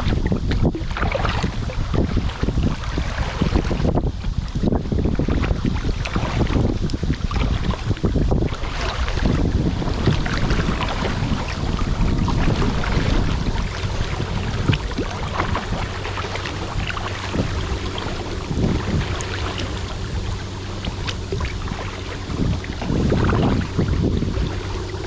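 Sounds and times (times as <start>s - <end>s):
river water rushing and splashing: 0.0s - 25.0s
wind rumble on microphone: 0.0s - 25.0s.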